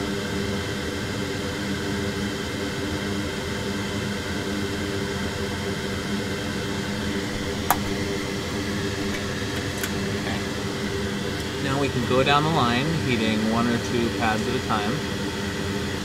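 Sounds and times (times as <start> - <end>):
electric fan whirring: 3.7 - 16.0.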